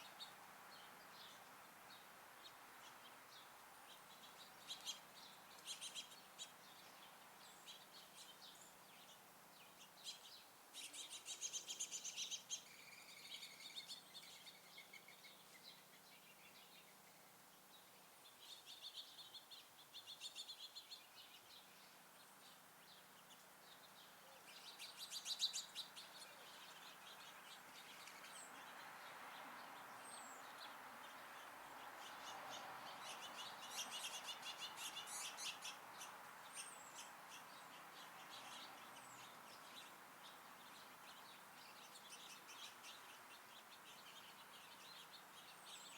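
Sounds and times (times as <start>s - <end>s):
small songbirds chirping: 0.0s - 45.9s.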